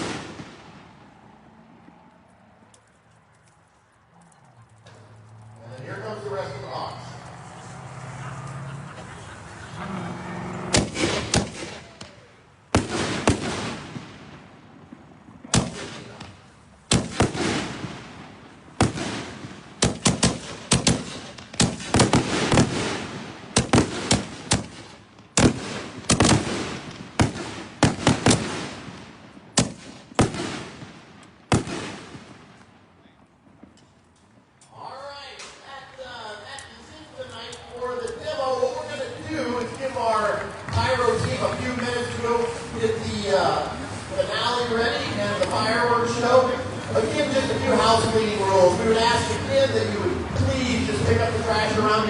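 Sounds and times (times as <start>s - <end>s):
firework shells bursting: 10.7s - 32.8s.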